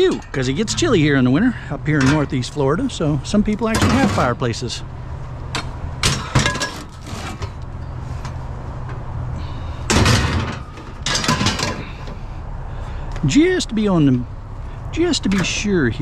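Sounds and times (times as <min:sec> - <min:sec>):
iron andirons clanking: 0:00.0 - 0:02.6, 0:03.6 - 0:04.5, 0:05.5 - 0:08.4, 0:09.4 - 0:12.3
steady low hum: 0:00.0 - 0:16.0.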